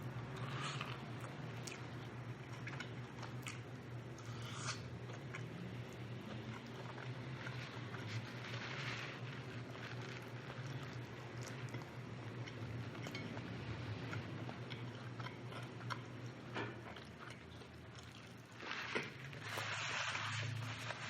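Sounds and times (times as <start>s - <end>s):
steady low hum: 0.0s - 21.0s
chewing and biting chicken: 0.3s - 21.0s
rustling noise: 7.4s - 11.0s, 18.6s - 21.0s.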